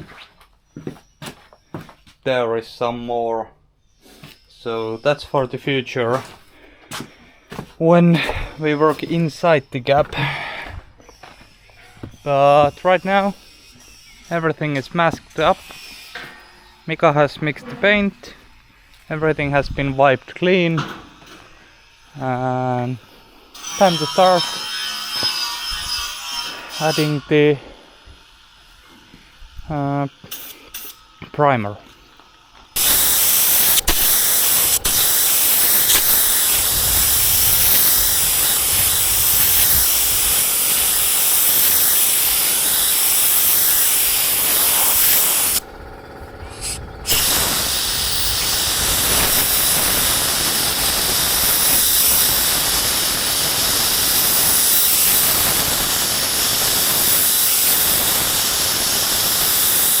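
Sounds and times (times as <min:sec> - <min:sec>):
spray gun hissing: 0:32.8 - 1:00.0.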